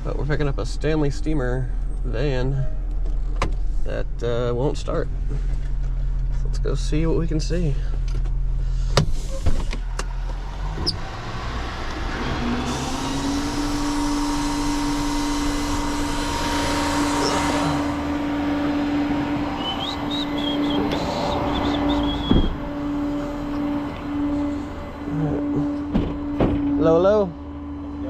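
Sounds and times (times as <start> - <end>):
vehicle engine idling: 0.0 - 28.0
steady tone: 12.6 - 28.0
thump: 22.2 - 22.8, 25.6 - 26.8.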